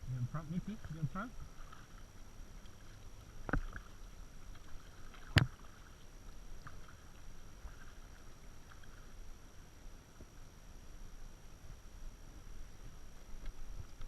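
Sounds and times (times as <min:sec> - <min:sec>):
water drips and splashes: 0:00.5 - 0:09.3.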